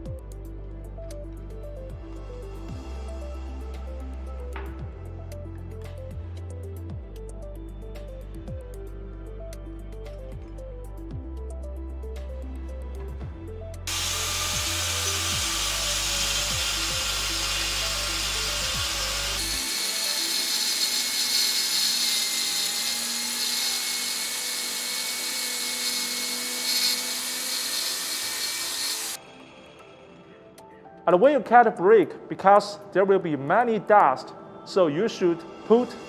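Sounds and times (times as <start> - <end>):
background music: 0.0 - 36.0
angle grinder cutting brick: 13.9 - 29.3.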